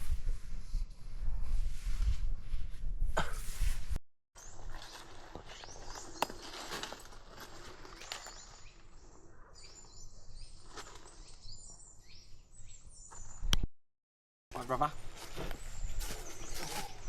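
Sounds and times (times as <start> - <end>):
birds chirping: 4.4 - 13.7, 14.6 - 17.0.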